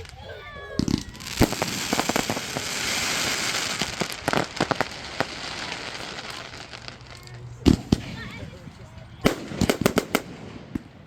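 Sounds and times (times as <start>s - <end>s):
fireworks bangs: 0.0s - 11.0s
fireworks crackling: 0.0s - 11.0s.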